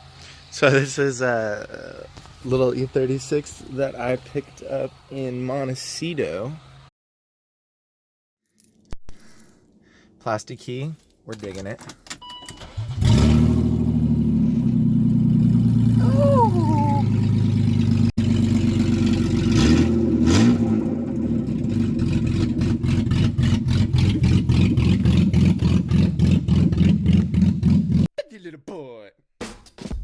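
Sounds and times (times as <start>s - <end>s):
car engine starting and idling: 11.4s - 28.1s.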